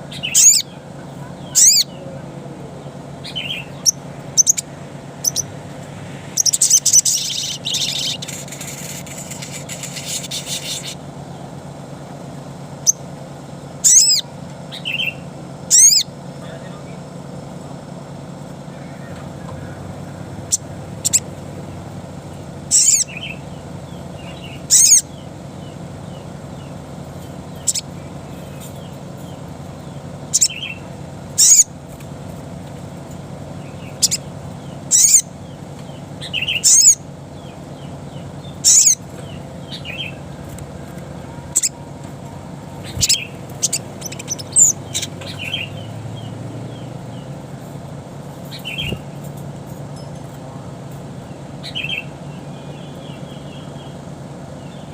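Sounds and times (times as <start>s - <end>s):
sharp high bird calls: 0.0s - 2.1s, 3.2s - 5.6s, 6.3s - 11.1s, 13.8s - 16.2s, 18.7s - 21.4s, 22.6s - 31.8s, 33.6s - 47.4s, 48.5s - 49.2s, 51.3s - 54.0s
soft bird chirps: 0.0s - 11.5s, 13.8s - 17.0s, 18.7s - 21.4s, 22.3s - 31.8s, 33.4s - 47.8s, 48.4s - 50.4s, 51.2s - 54.9s
steady low hum: 0.0s - 54.9s.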